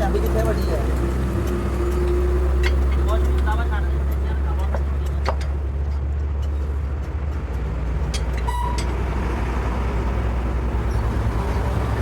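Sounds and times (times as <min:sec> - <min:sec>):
heavy engine idling: 0:00.0 - 0:12.0
short high squeak: 0:08.4 - 0:09.0.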